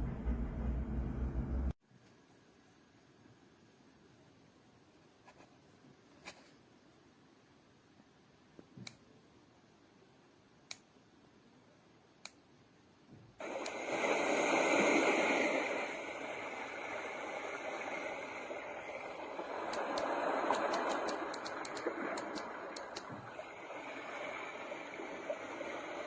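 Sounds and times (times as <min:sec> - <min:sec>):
white noise machine rushing: 0:00.0 - 0:01.8, 0:13.4 - 0:26.0
light clicks: 0:19.7 - 0:23.2.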